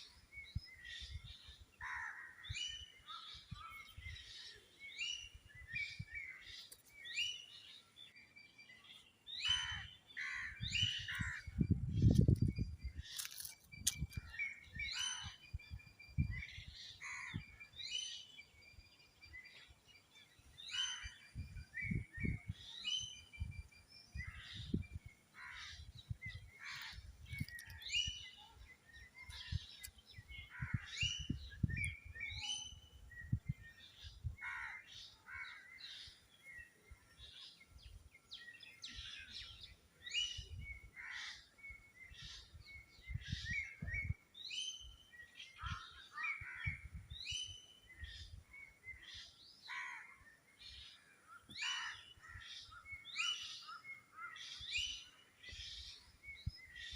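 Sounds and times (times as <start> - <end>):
birds chirping: 0.0 - 56.9.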